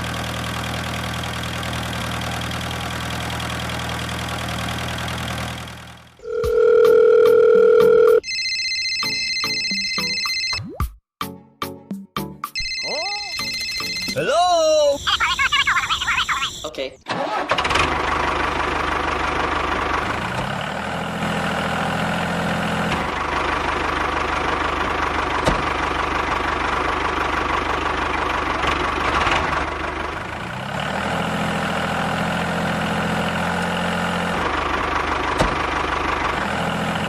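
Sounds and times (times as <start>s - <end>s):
diesel tractor engine idling: 0.0s - 6.7s, 14.2s - 37.0s.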